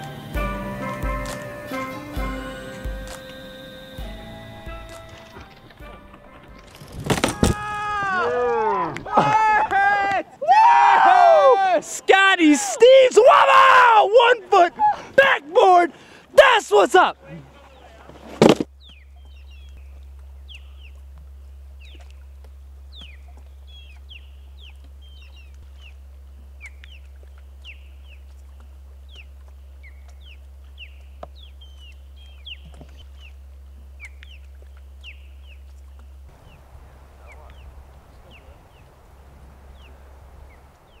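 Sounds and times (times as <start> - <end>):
birds chirping: 0.0 - 7.0, 13.9 - 41.0
steady low hum: 0.0 - 7.9, 17.1 - 41.0.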